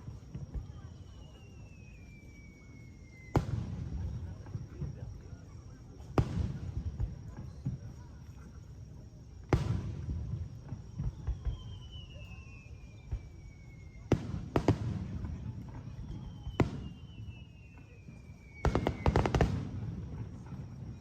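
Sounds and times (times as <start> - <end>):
firework crackling: 0.0 - 5.2, 9.5 - 21.0
whistling firework shells: 0.0 - 8.2, 9.4 - 21.0
firework bangs: 3.2 - 5.0, 9.5 - 12.0, 14.0 - 21.0.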